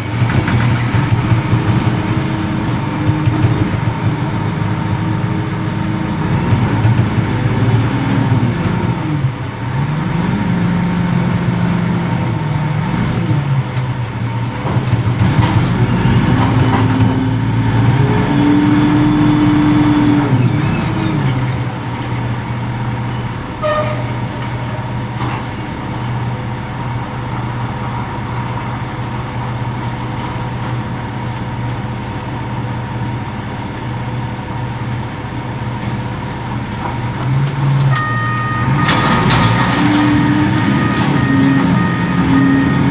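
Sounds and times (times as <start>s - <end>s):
diesel engine revving: 0.0s - 29.6s, 34.2s - 42.9s
faint high tone: 37.9s - 39.6s.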